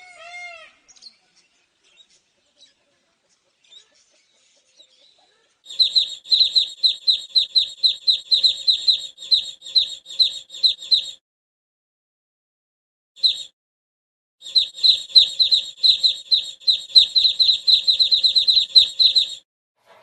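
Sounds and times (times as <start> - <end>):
bird chirping fast high chirps: 5.7 - 11.2, 13.2 - 13.5, 14.4 - 19.4.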